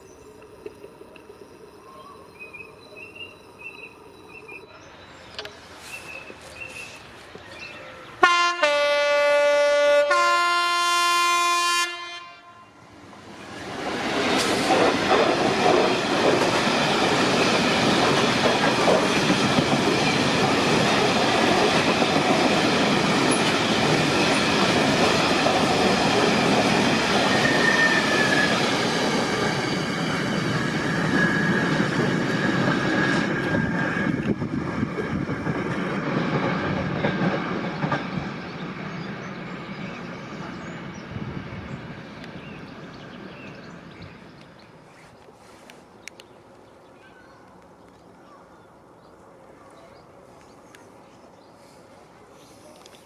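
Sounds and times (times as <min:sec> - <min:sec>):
train wheels clattering over rail joints: 0:13.9 - 0:27.6.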